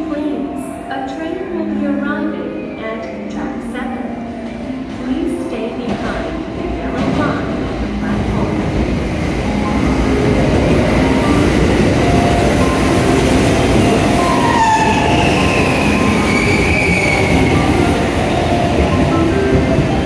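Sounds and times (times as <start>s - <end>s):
train wheels rumbling on rails: 4.4s - 20.0s.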